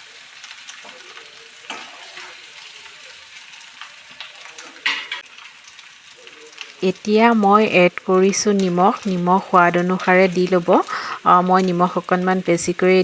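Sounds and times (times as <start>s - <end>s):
potatoes sizzling in hot oil: 0.0s - 13.0s
spatula scraping pan: 1.7s - 2.8s.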